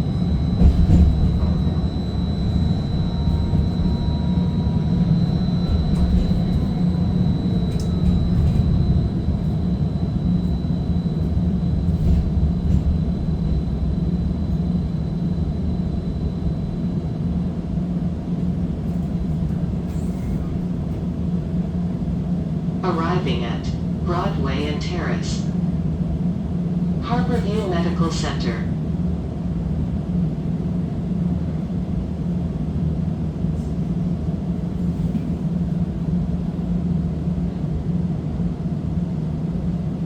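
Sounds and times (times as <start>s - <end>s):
streetcar wheels rumbling on rails: 0.0s - 40.0s.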